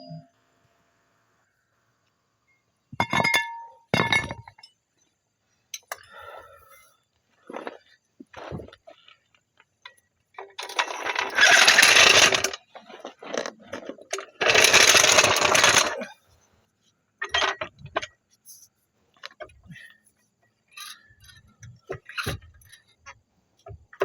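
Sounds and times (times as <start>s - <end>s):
power tool running: 11.0s - 12.6s, 14.2s - 16.0s.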